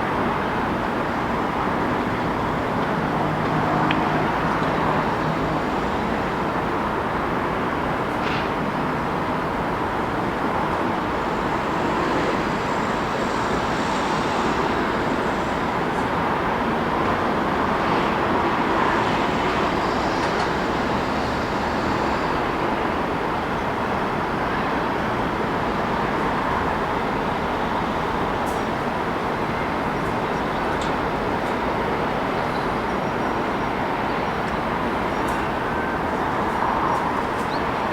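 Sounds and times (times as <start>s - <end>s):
road traffic passing: 0.2s - 8.0s.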